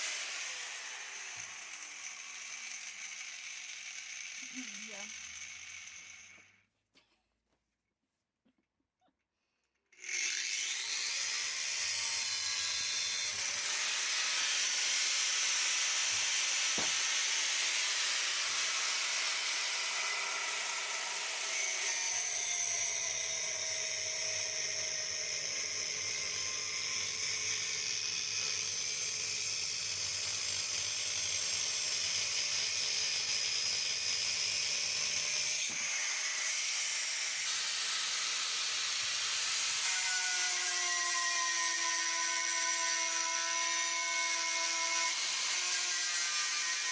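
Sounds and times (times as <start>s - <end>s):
angle grinder cutting steel: 0.0s - 6.6s, 10.0s - 46.9s.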